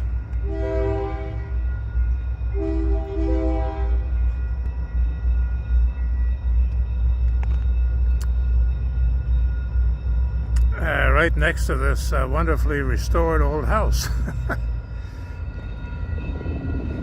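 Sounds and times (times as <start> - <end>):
freight train rumbling: 0.0 - 17.0
train horn blasts: 0.4 - 1.6, 2.5 - 4.2.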